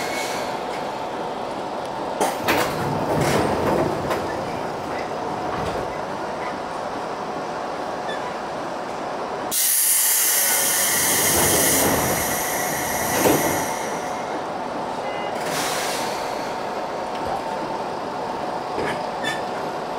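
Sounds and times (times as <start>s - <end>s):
compressed air hiss: 9.5s - 14.3s.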